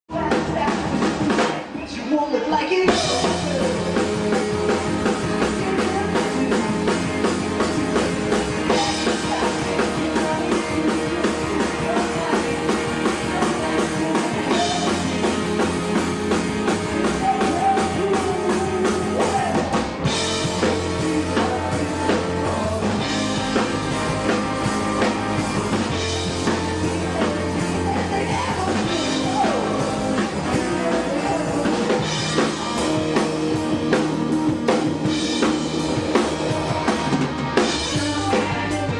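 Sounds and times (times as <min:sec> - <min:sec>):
drum kit beat: 0:00.1 - 0:38.9
rock band playing live: 0:00.1 - 0:38.9.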